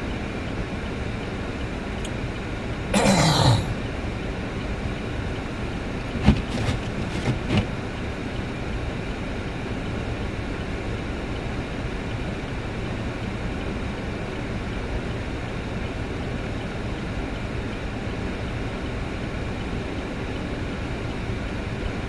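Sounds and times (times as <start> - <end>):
car road rumble: 4.9 - 7.8.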